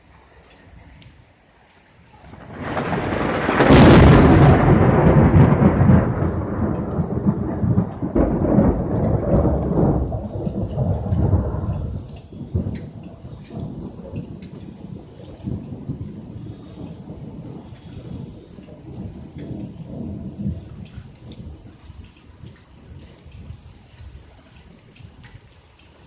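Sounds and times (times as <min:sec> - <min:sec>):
rain falling: 0:00.0 - 0:26.0
loud thunder crack and rumble: 0:02.3 - 0:21.7.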